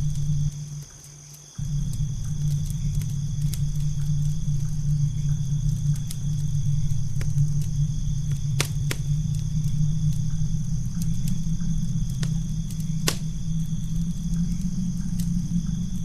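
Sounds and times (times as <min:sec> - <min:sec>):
low rumble: 0:00.0 - 0:00.9, 0:01.6 - 0:16.0
campfire crackling and popping: 0:00.0 - 0:16.0
crickets droning: 0:00.0 - 0:16.0.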